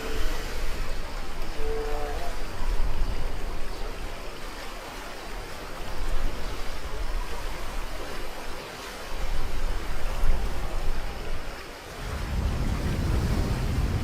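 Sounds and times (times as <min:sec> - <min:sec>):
river water rushing and splashing: 0:00.0 - 0:14.0
wind buffeting microphone: 0:09.2 - 0:14.0.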